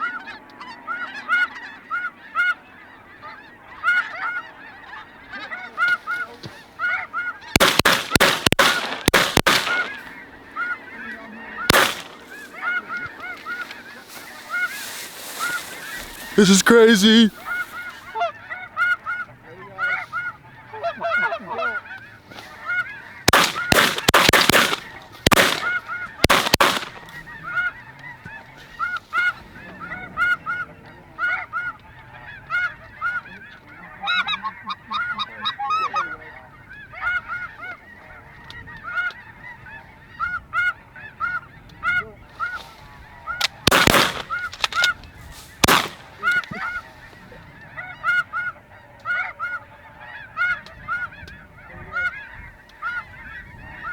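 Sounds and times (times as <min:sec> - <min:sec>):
geese honking: 0:00.0 - 0:53.9
shotgun shots: 0:07.6 - 0:10.2, 0:11.7 - 0:12.5, 0:23.3 - 0:27.2, 0:43.5 - 0:44.9, 0:45.6 - 0:46.6.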